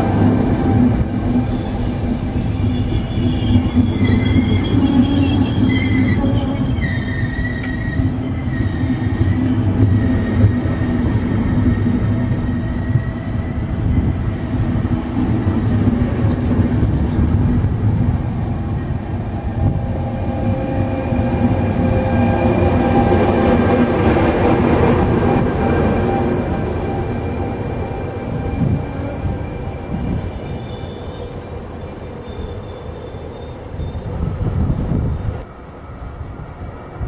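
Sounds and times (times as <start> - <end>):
high wheel squeal: 0.0 - 14.2, 28.3 - 34.5
train rumbling on track: 0.0 - 37.0.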